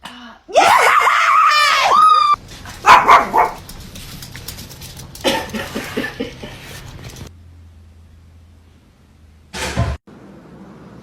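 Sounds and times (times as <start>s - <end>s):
dog barking: 2.8s - 3.6s
dog yipping: 2.8s - 3.6s.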